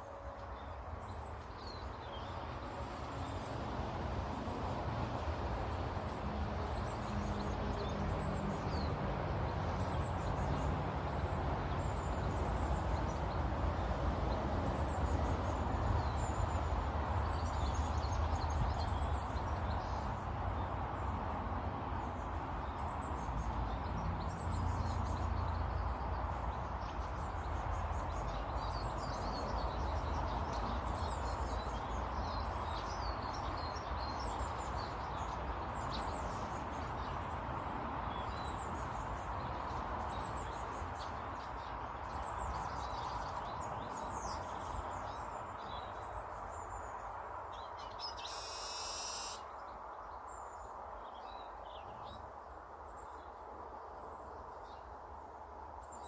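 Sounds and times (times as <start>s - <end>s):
small birds chirping: 38.1s - 52.3s.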